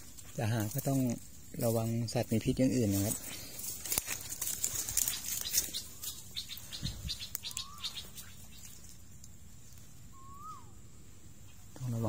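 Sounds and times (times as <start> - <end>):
vegetation crackling and snapping: 0.0 - 10.5
bird whistled call: 5.7 - 8.7, 10.1 - 10.9.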